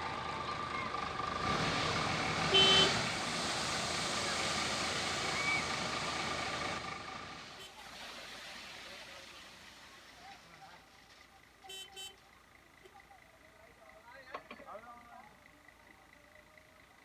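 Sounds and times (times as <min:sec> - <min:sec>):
heavy diesel engine running: 0:00.0 - 0:07.9.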